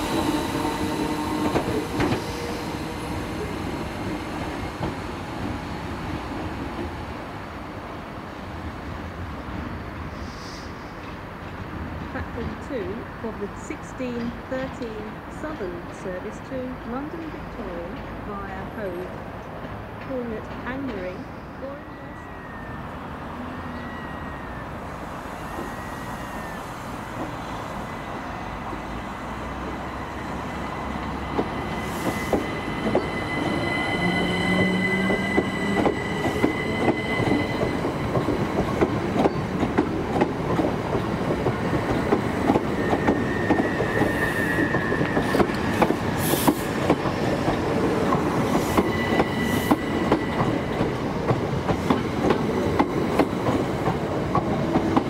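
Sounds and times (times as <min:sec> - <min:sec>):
electric train arriving: 0:00.0 - 0:55.0
high wheel squeals: 0:21.3 - 0:28.5, 0:30.6 - 0:38.5, 0:42.7 - 0:46.7, 0:48.5 - 0:50.9.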